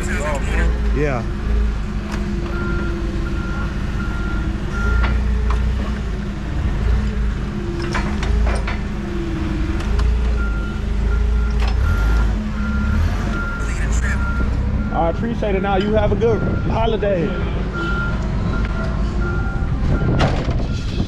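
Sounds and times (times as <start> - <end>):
engine running: 0.0 - 21.0
reversing alarm beeping: 2.3 - 5.5, 9.0 - 21.0.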